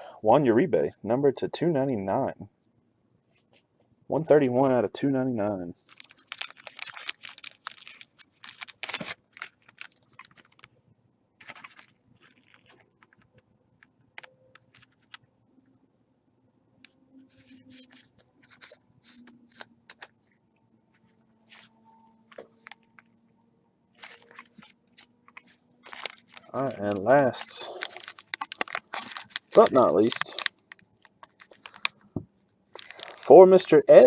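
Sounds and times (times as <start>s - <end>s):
trading cards shuffling and clicking: 17.8s - 20.2s, 24.0s - 30.4s.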